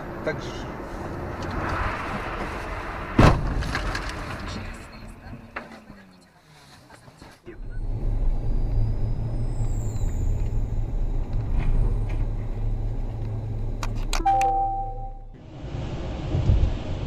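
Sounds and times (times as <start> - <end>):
car rumbling on road: 0.0 - 17.0
ringing chime-like tone: 14.2 - 15.3.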